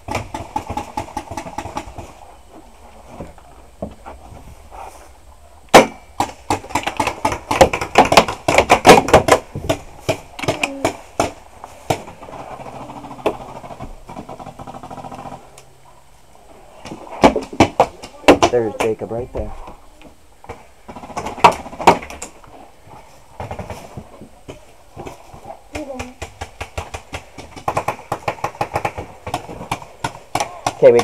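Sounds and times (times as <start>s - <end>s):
paintball markers firing: 25.8s - 31.0s.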